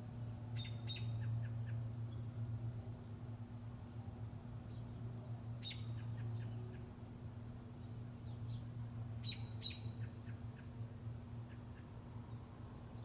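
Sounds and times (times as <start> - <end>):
small bird chirping: 0.5 - 3.4, 5.6 - 6.9, 7.8 - 10.8.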